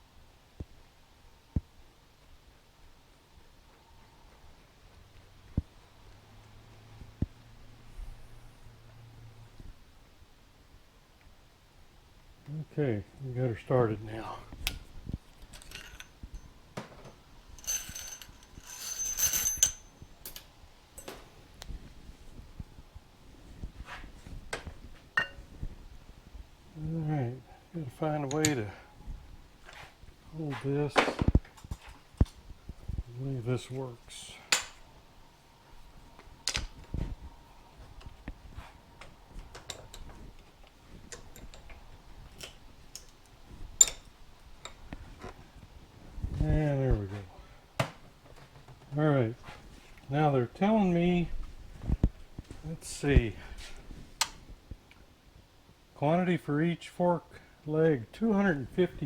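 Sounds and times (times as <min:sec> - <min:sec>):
metal parts and tools clicking: 0:15.4 - 0:16.5, 0:17.6 - 0:21.2, 0:28.3 - 0:28.6
metallic rasping with high ringing: 0:17.6 - 0:20.0.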